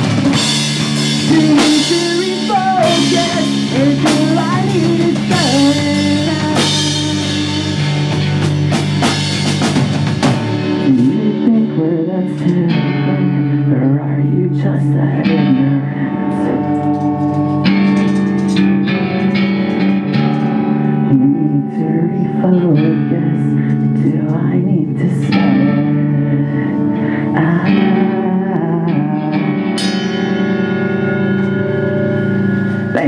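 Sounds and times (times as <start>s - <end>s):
drum kit with cymbals: 0.0s - 11.4s
bass guitar: 0.0s - 33.0s
electric guitars: 0.0s - 33.0s.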